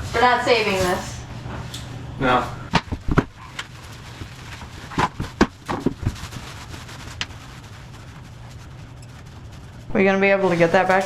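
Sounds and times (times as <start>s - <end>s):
sharp knocks and cracks: 2.7s - 3.7s, 4.7s - 6.5s.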